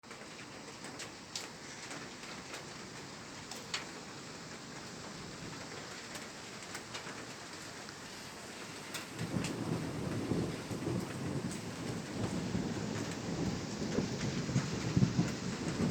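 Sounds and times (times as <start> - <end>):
rain falling: 0.0 - 15.9
raindrop taps: 0.1 - 2.7, 8.8 - 15.9.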